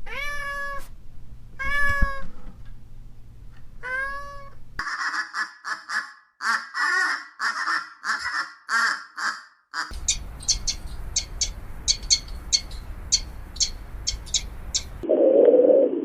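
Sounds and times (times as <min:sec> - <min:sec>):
high quick bird chirps: 0:09.9 - 0:15.0.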